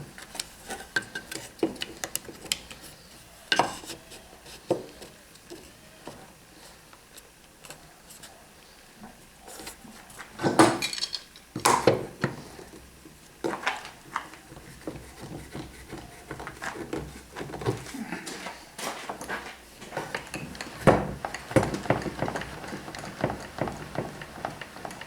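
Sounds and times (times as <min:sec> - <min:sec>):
wood and metal parts knocking: 0:19.8 - 0:25.0.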